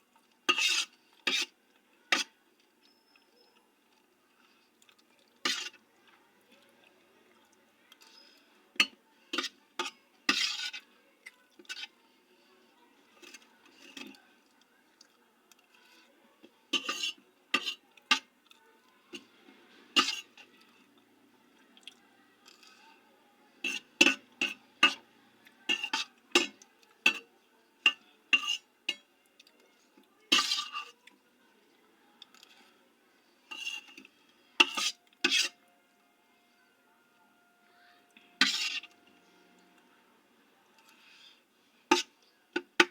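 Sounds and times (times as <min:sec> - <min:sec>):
utensil clinking against dish: 0:16.8 - 0:18.3, 0:25.7 - 0:29.0.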